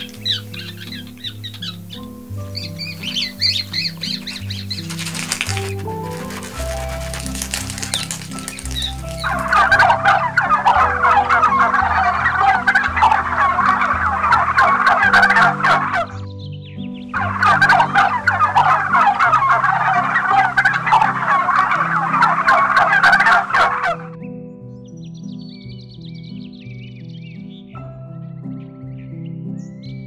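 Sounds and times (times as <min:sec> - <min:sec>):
turkey gobbling: 0:00.0 - 0:16.1, 0:17.2 - 0:24.1.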